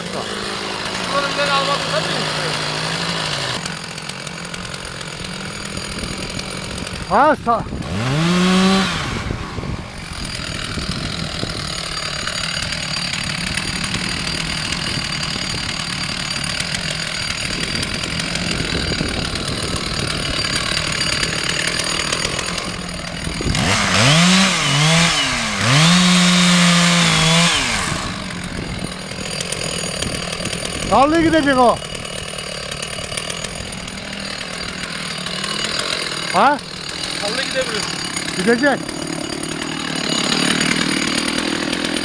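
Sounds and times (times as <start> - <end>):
chainsaw cutting wood: 0.0 - 42.0.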